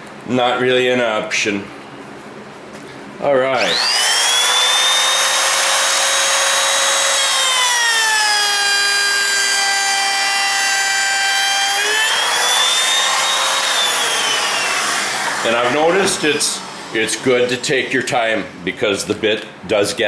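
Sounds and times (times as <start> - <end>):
electric router whining: 3.6 - 18.6.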